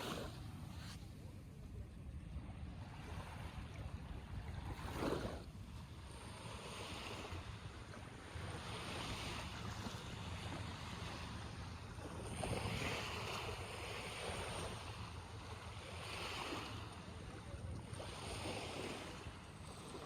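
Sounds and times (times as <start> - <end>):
small sea waves washing in: 0.0 - 20.0
wind rumbling on microphone: 0.0 - 20.0.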